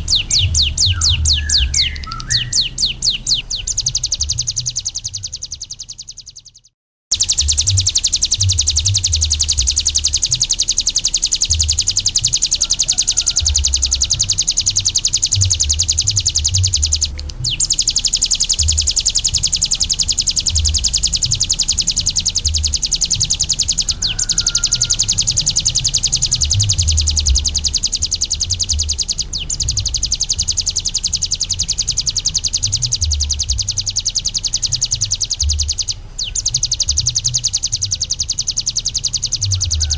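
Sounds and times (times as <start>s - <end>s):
bird high buzzing trill: 0.0s - 39.9s
irregular low rumble: 13.4s - 39.9s.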